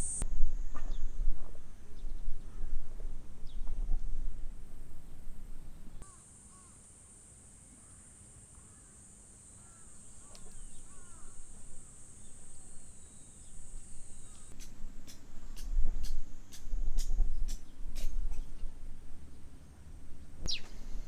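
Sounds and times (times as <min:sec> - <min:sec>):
high-pitched insect drone: 0:00.0 - 0:00.2
bird short calls: 0:20.5 - 0:21.0.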